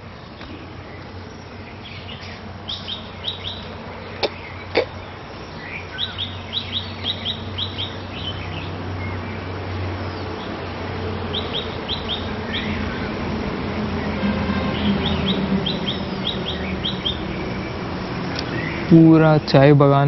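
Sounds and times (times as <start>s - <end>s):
songbird calling high notes: 1.5s - 9.2s, 11.3s - 13.3s, 13.9s - 19.6s.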